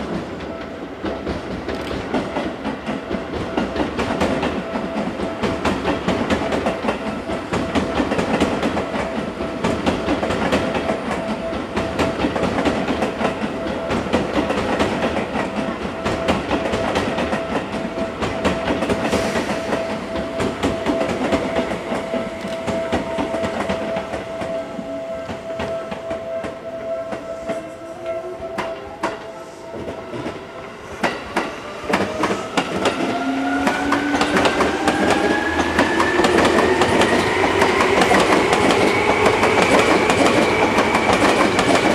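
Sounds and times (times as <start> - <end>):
steady high tone: 15.2 - 41.9
train wheels clattering over rail joints: 31.0 - 41.9.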